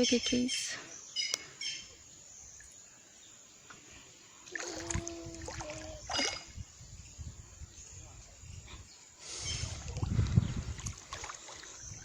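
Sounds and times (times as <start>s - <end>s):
river water flowing: 4.4s - 6.5s, 10.7s - 12.0s.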